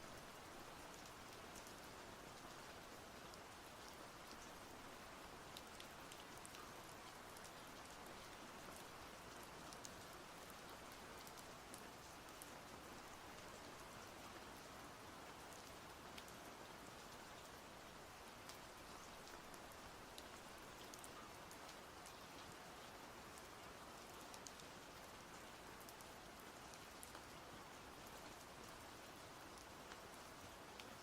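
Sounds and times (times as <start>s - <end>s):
quiet rain: 0.0s - 31.0s
raindrop ticks: 18.5s - 22.5s, 24.3s - 24.7s.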